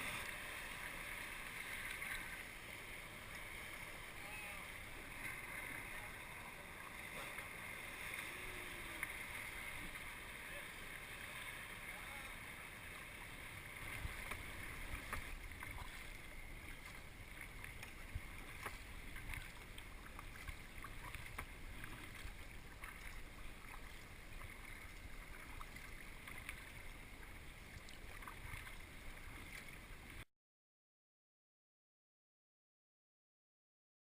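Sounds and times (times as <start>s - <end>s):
water splashing around kayak: 0.0s - 30.2s
wind rumble on microphone: 13.8s - 23.0s.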